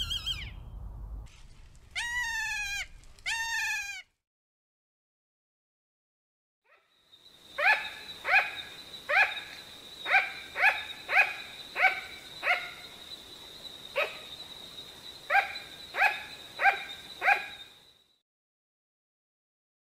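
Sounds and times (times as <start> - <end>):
sugar glider barking: 7.6 - 12.9, 15.3 - 17.6.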